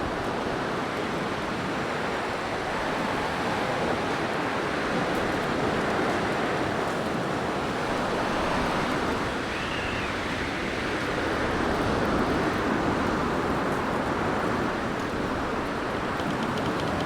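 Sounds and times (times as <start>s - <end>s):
blizzard wind rushing: 1.9s - 16.1s
faint wind whistle: 7.9s - 12.3s.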